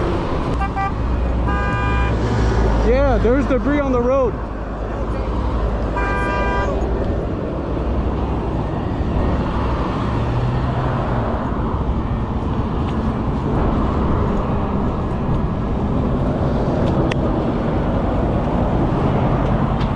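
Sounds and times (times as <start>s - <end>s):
wind rush over microphone: 7.0s - 19.9s.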